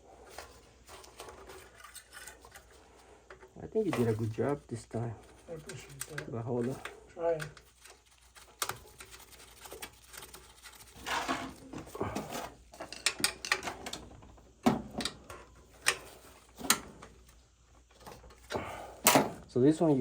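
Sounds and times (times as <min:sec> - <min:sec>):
metal parts clicking and clattering: 0:00.3 - 0:04.2, 0:12.2 - 0:14.1.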